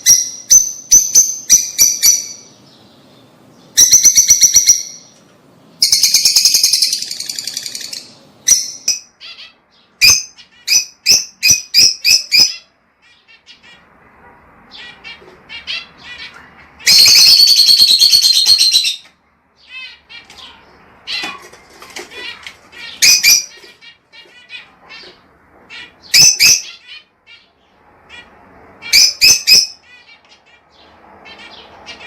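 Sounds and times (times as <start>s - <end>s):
lovebirds chattering trill: 14.7s - 32.0s.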